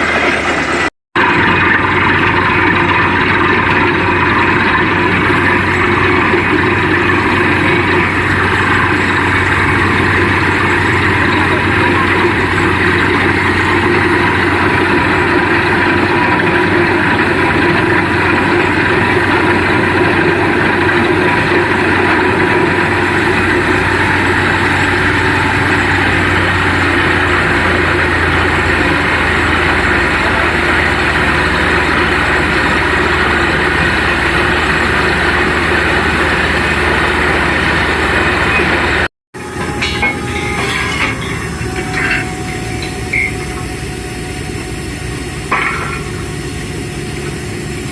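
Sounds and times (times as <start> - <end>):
drilling rig running: 0.0 - 47.9
knocks and clatter: 39.4 - 44.3.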